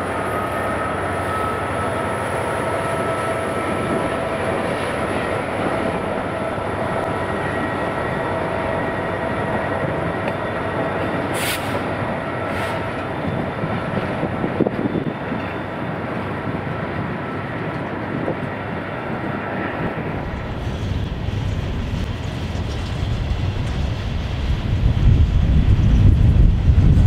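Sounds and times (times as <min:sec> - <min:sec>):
train wheels rumbling on rail: 0:00.0 - 0:27.0
brief hisses: 0:11.3 - 0:11.9, 0:12.5 - 0:12.9.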